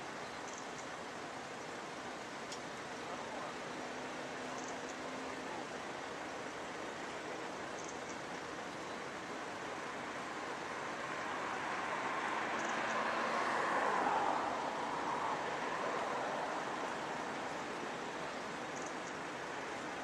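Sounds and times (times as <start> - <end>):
vehicle passing by: 10.9 - 17.8.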